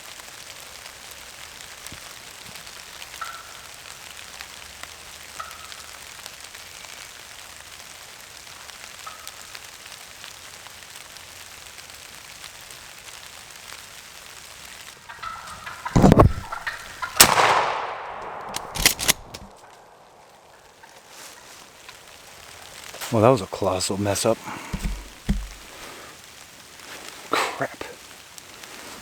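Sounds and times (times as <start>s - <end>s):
rain pattering: 0.0s - 29.0s
thumps and rustles near microphone: 16.0s - 16.7s, 24.5s - 25.9s.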